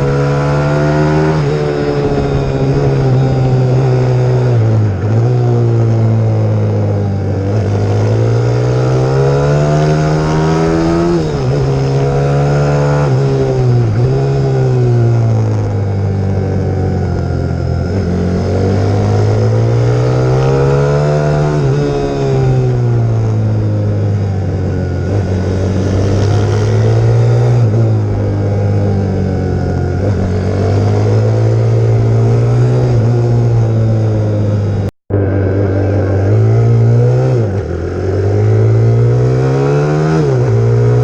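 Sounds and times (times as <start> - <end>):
motorbike engine revving: 0.0 - 41.0.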